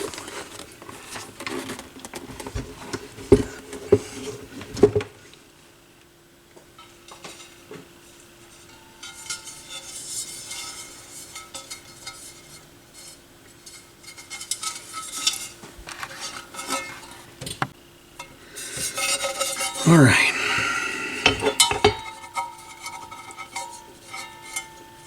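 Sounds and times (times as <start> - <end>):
faint hum: 19.8 - 22.4.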